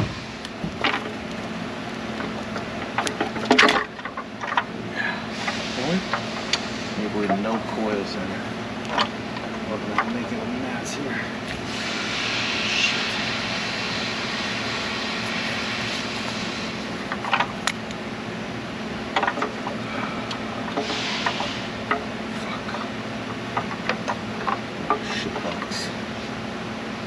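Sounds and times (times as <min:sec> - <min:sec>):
steady hum: 0:00.0 - 0:27.0
hissing: 0:11.1 - 0:17.9.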